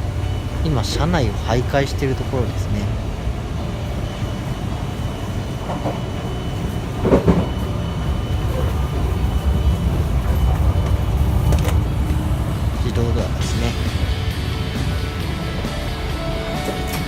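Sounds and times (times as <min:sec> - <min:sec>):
train cabin rumble: 0:00.0 - 0:17.0.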